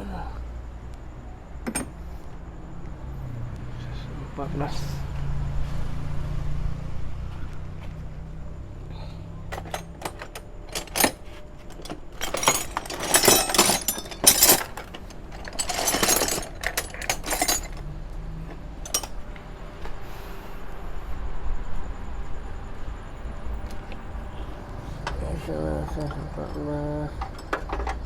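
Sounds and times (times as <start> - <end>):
metal tools clinking and rattling: 1.6 - 2.0, 9.5 - 17.9, 18.5 - 19.2, 25.1 - 28.0.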